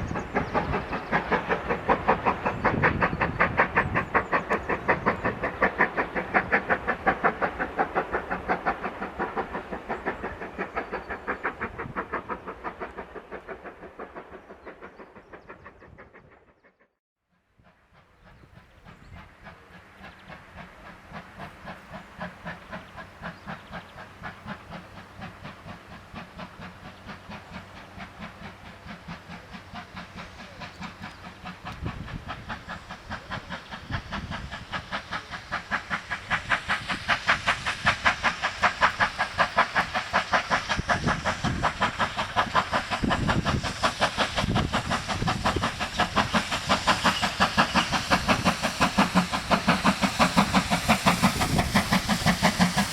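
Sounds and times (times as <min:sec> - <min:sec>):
steam hissing: 0:00.0 - 0:16.5, 0:17.6 - 0:52.9
steam locomotive exhaust beating: 0:00.0 - 0:52.9.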